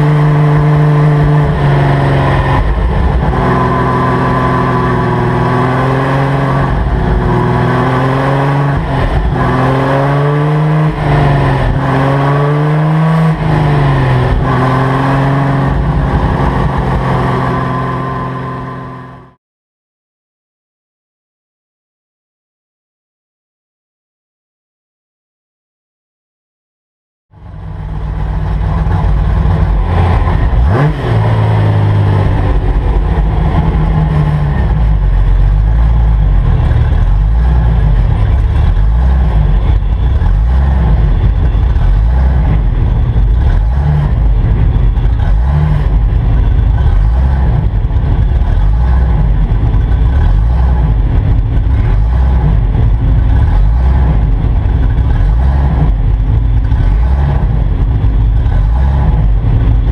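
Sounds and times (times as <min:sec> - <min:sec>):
race car engine at high revs: 0:00.0 - 0:19.4, 0:27.4 - 0:59.9.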